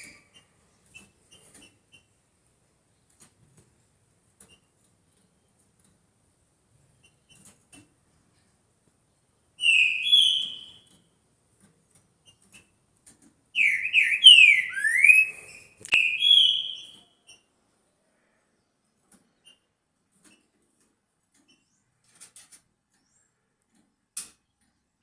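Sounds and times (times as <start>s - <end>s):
bird singing whistled notes: 9.6s - 10.9s, 13.6s - 17.1s.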